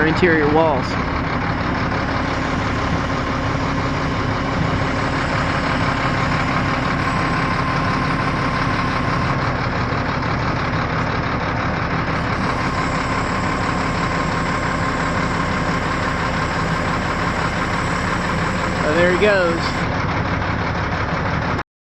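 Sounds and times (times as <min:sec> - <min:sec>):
crane engine running: 0:00.0 - 0:21.6
thin steady whine: 0:02.0 - 0:09.6, 0:12.1 - 0:19.9.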